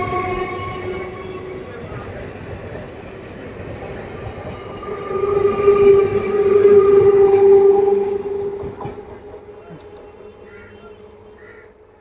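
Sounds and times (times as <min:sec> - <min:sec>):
train wheels rumbling on track: 0:00.0 - 0:12.0
steady horn-like tone: 0:04.9 - 0:09.2.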